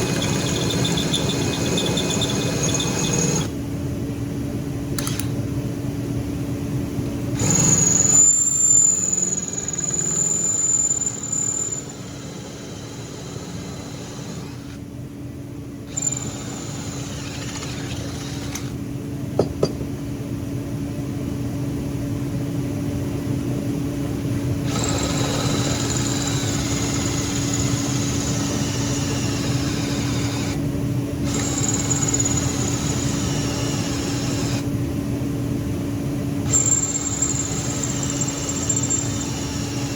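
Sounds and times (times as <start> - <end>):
drill bit squealing through steel: 0.0 - 3.5, 7.4 - 14.8, 15.9 - 18.7, 24.7 - 30.6, 31.3 - 34.6, 36.5 - 39.9
electric drill motor hum: 0.0 - 3.5, 7.4 - 14.8, 15.9 - 18.8, 24.6 - 30.6, 31.2 - 34.6, 36.4 - 39.9.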